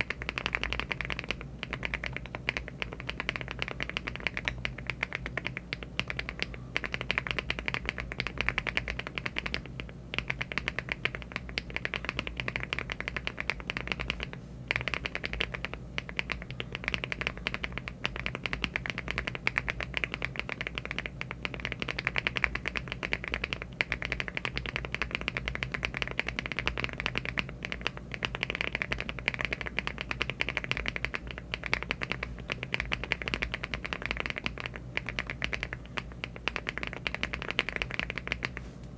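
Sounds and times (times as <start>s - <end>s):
mechanical keyboard typing: 0.0s - 38.6s
low steady hum: 0.0s - 38.9s.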